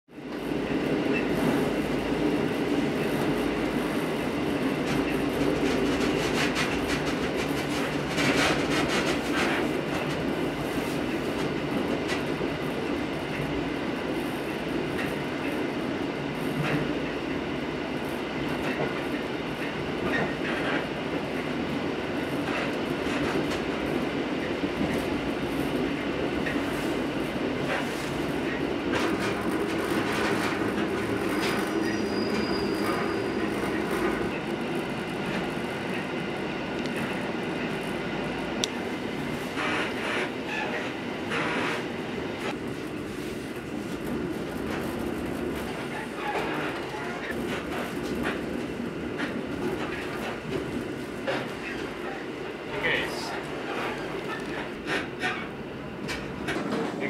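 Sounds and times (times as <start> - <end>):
train rumbling on rails: 0.1 - 57.0.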